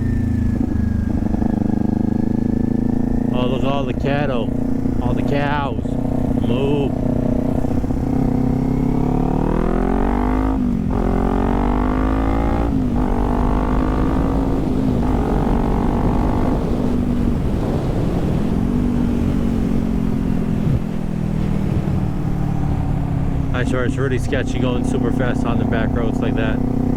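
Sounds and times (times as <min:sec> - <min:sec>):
motorcycle engine accelerating: 0:00.0 - 0:26.9
wind rush: 0:12.2 - 0:24.8.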